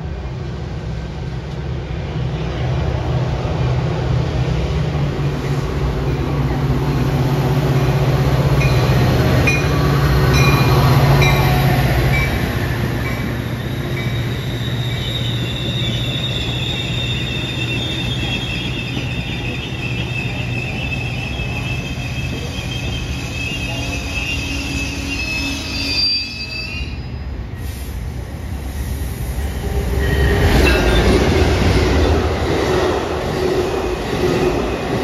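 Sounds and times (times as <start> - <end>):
diesel locomotive engine hum: 0.0 - 26.1
train cars rumbling past: 0.0 - 35.0
high wheel squeal: 13.0 - 27.3.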